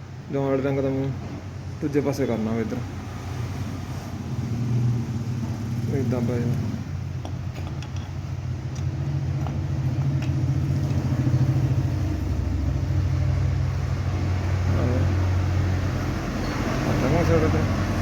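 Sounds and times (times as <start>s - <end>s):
engine running: 4.4s - 18.0s.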